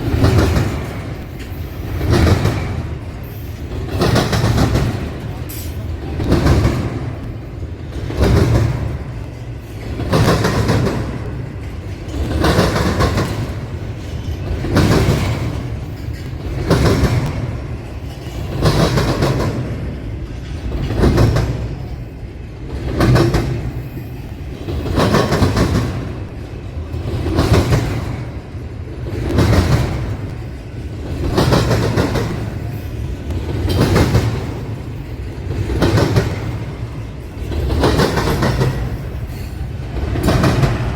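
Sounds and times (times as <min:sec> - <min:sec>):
train rolling rumble: 0:00.0 - 0:40.9
train wheels clattering: 0:00.0 - 0:40.9.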